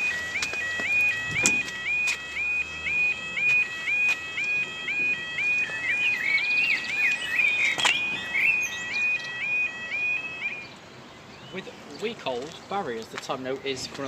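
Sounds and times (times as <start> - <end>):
warbling crossing alarm: 0.0 - 11.1
small bird chirping: 6.1 - 9.4.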